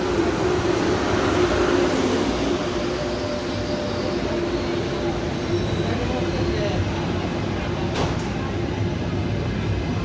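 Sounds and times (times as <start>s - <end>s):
train running with low hum: 0.0s - 10.0s.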